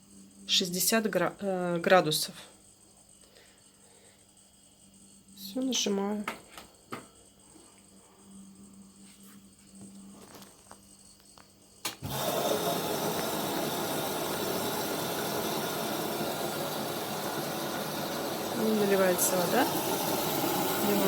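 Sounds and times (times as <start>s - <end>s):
washing machine humming: 11.9s - 21.0s
water rushing into machine: 12.0s - 21.0s.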